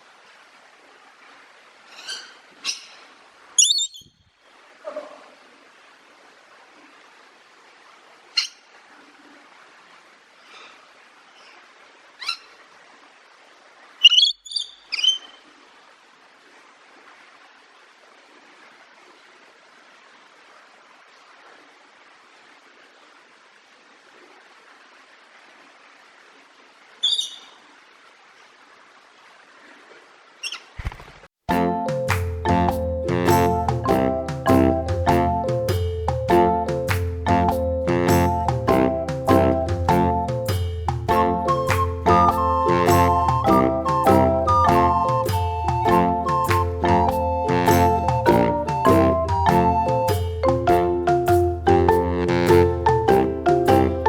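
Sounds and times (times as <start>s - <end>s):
faint steady hiss: 0.0s - 54.0s
bird chirping: 3.6s - 4.3s, 14.0s - 15.4s, 27.0s - 27.6s, 30.4s - 30.8s.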